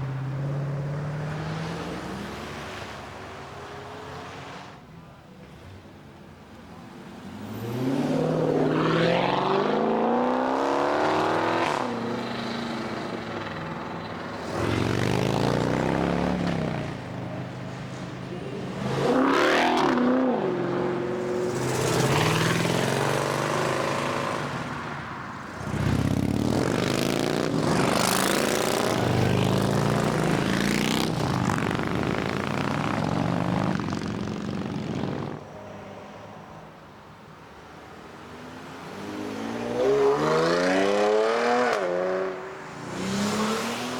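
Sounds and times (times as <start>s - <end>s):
cars accelerating hard: 7.1s - 17.0s, 18.3s - 35.5s, 38.7s - 43.9s.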